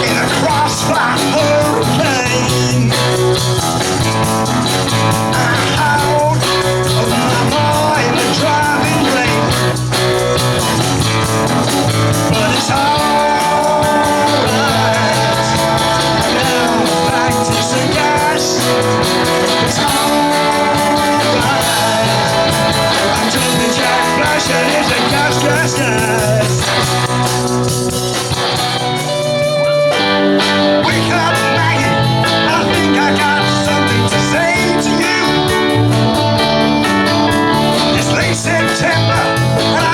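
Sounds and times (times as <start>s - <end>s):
electric guitar: 0.0s - 39.9s
live rock band playing: 0.0s - 39.9s.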